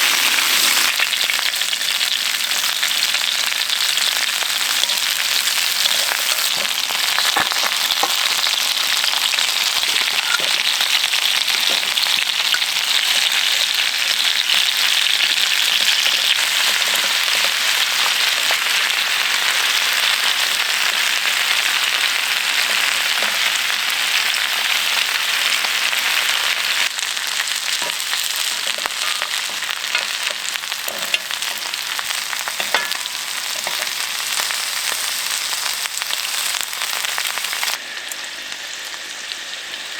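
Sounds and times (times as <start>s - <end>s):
food sizzling in hot fat: 0.0s - 39.9s.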